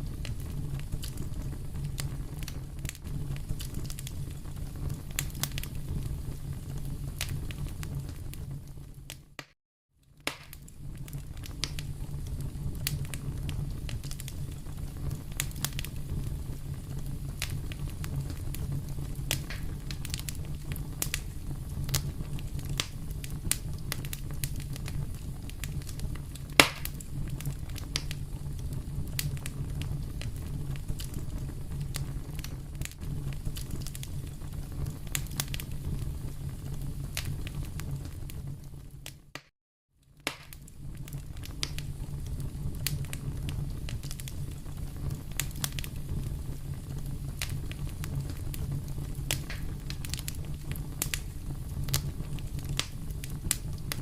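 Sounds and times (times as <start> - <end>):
wood fire crackling: 0.0 - 54.0
sharp loud pop: 10.3 - 10.6, 26.6 - 26.9, 40.3 - 40.6.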